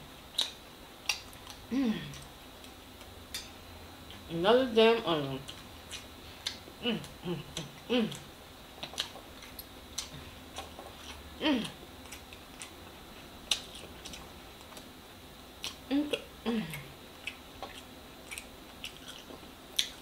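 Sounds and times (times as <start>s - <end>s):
chewing: 0.3s - 3.6s, 5.4s - 14.9s, 15.6s - 20.0s
wet mouth clicks and smacks: 0.4s - 1.6s, 5.5s - 6.6s
person humming mmm: 1.7s - 2.3s, 6.8s - 8.3s, 11.4s - 11.8s, 15.9s - 17.0s.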